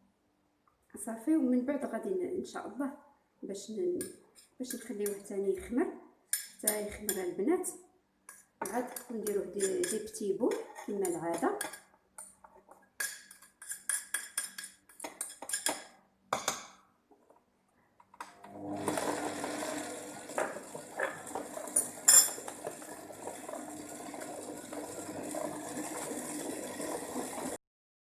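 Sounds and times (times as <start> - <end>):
utensils clinking against bowl: 8.6 - 11.8, 13.0 - 15.9, 21.7 - 22.5
stand mixer humming: 18.4 - 27.6.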